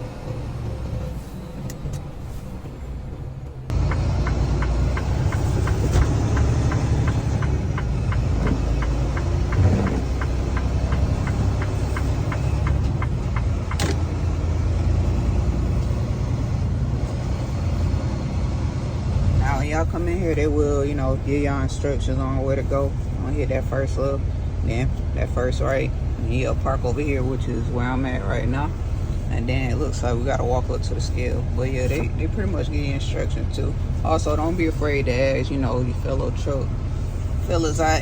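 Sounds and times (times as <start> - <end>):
truck engine and road rumble: 0.0 - 38.0
turn signal ticking: 3.7 - 17.8.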